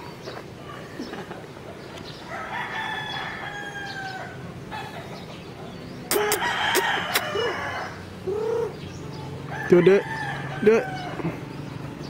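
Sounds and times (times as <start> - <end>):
rooster crowing: 2.3 - 4.4, 6.1 - 8.7, 9.5 - 11.3.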